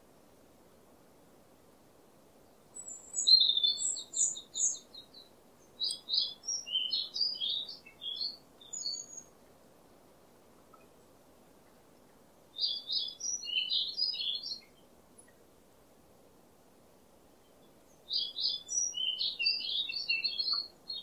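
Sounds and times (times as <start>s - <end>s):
small bird chirping: 2.4s - 9.4s, 12.6s - 15.4s, 17.4s - 21.0s.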